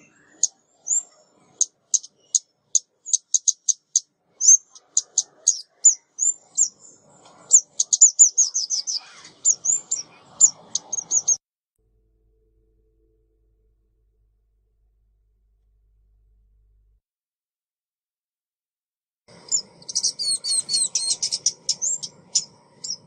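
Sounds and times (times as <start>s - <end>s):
bird call chirps and whistles: 0.0s - 11.4s, 19.4s - 23.0s.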